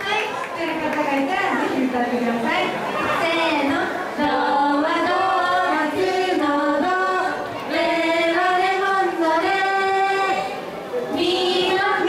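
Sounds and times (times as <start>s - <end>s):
women singing in unison: 3.1s - 12.0s.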